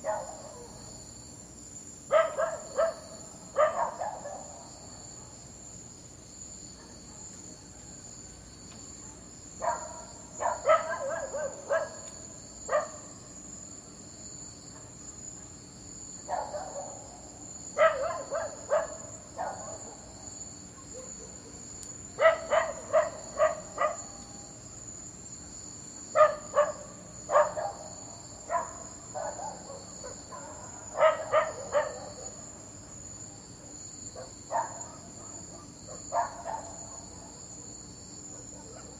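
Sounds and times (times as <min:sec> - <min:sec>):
dog barking: 0:00.0 - 0:00.8, 0:02.1 - 0:05.4, 0:06.7 - 0:07.4, 0:09.0 - 0:12.1, 0:12.7 - 0:13.1, 0:16.3 - 0:17.2, 0:17.8 - 0:20.2, 0:20.8 - 0:21.6, 0:22.2 - 0:24.3, 0:26.1 - 0:32.5, 0:33.6 - 0:37.7, 0:38.3 - 0:38.9.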